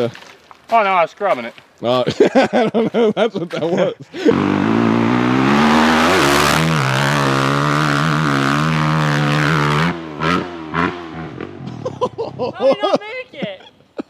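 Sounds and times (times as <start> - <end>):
dirt bike engine revving: 4.2 - 12.3.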